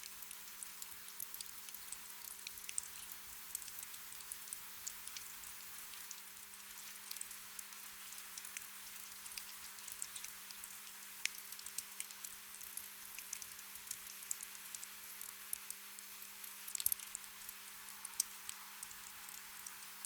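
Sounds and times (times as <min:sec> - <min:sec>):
gentle rain hiss: 0:00.0 - 0:20.0
small drip taps: 0:16.5 - 0:19.8.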